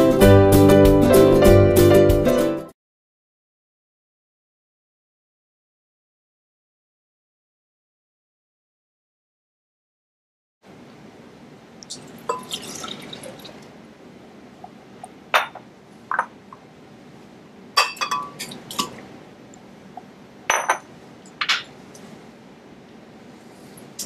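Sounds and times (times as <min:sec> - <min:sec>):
glass and dishware clinking: 0:12.3 - 0:13.0, 0:17.8 - 0:19.0, 0:20.5 - 0:21.7.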